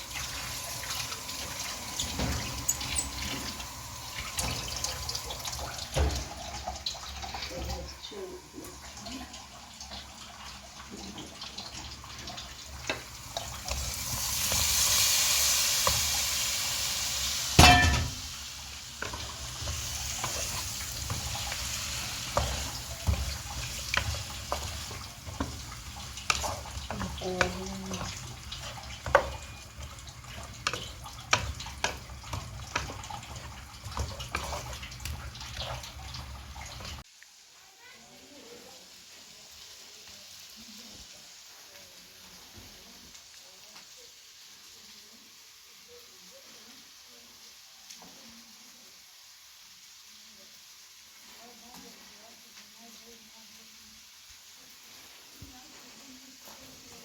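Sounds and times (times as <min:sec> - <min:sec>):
water pouring and splashing: 0:00.0 - 0:37.1
dishes clinking: 0:00.1 - 0:08.2, 0:17.6 - 0:18.4.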